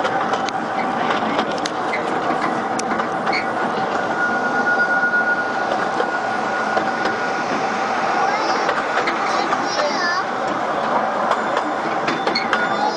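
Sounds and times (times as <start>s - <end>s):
train wheels rumbling and rattling: 0.0s - 12.9s
high wheel squeal: 3.2s - 10.3s, 11.3s - 12.9s.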